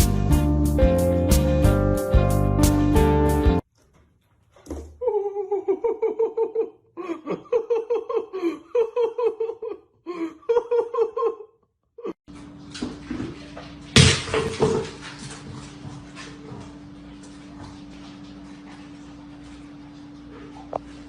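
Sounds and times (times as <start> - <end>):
high-pitched giggling laughter: 5.0 - 12.2.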